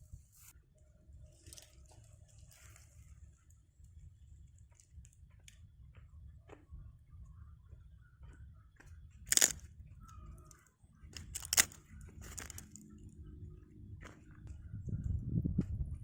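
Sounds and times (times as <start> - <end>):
fried chicken crunching: 9.3 - 9.6, 11.2 - 12.8.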